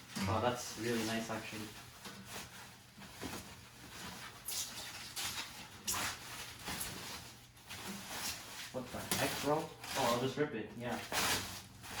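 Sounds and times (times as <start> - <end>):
packaging wrap rustling: 0.0 - 12.0.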